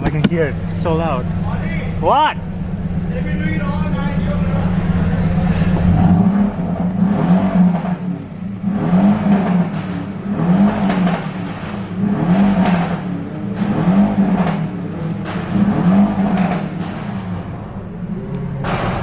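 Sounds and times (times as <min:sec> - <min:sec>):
loud car engine revving: 0:00.0 - 0:19.0.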